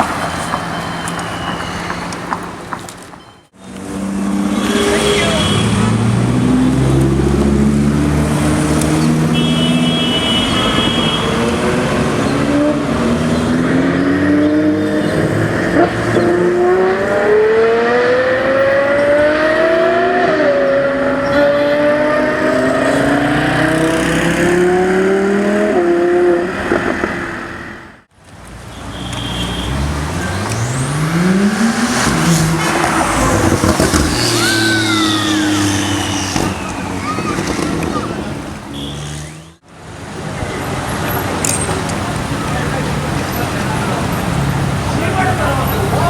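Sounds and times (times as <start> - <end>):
car engine accelerating: 29.7 - 39.6.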